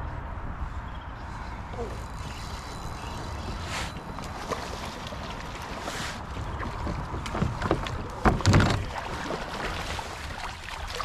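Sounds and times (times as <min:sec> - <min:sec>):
river water noise: 0:00.2 - 0:11.0
knocks on a kayak: 0:06.5 - 0:08.9.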